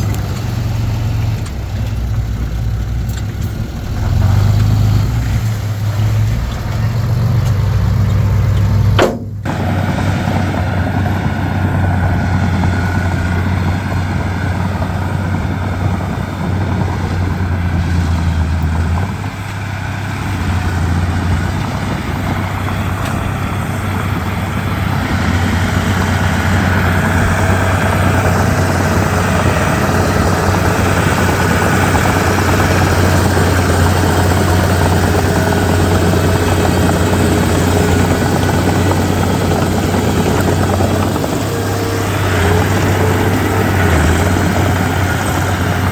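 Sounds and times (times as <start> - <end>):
bulldozer diesel engine running: 0.0 - 45.9.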